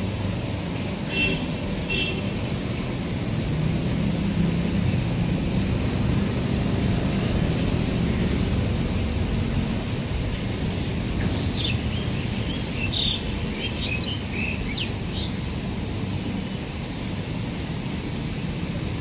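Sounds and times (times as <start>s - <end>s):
train rumbling: 0.0s - 19.0s
high bird chirps: 11.4s - 15.4s.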